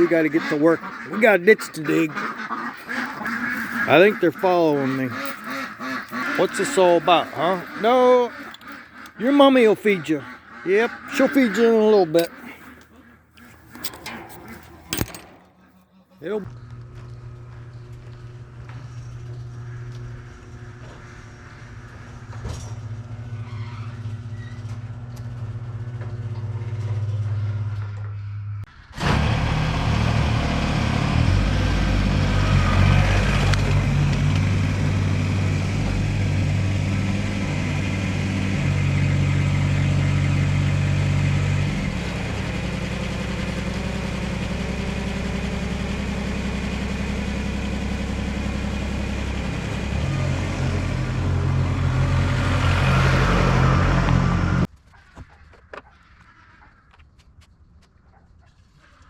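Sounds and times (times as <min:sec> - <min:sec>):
engine running: 0:00.0 - 0:54.7.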